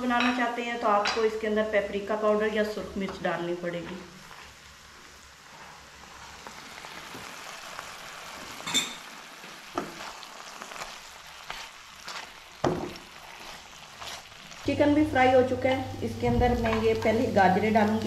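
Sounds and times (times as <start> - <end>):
chicken sizzling in a wok: 2.1 - 18.0
spatula knocking and scraping pan: 9.7 - 10.2, 10.8 - 14.4, 16.1 - 17.3.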